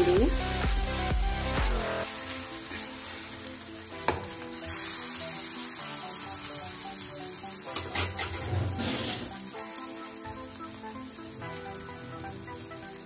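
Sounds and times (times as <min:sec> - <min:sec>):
oil sizzling on griddle: 0:00.0 - 0:13.0
metal spatula clacking pan: 0:07.7 - 0:08.4.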